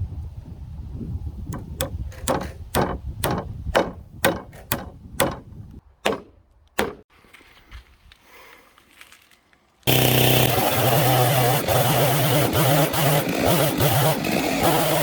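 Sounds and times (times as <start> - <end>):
hammer striking timber: 1.5 - 7.1.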